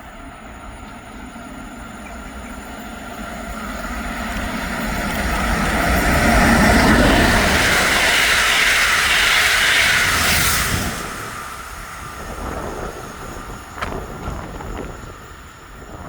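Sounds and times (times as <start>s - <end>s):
train passing: 0.0s - 16.0s.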